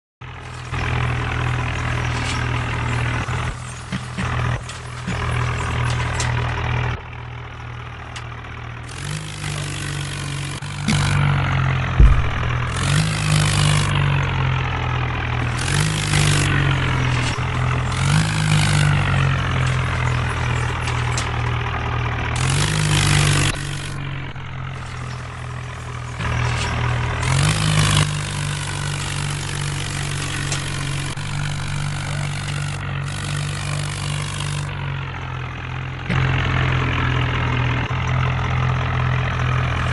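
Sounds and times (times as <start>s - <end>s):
tractor engine revving: 0.2s - 39.9s
sharp thump: 11.9s - 13.5s.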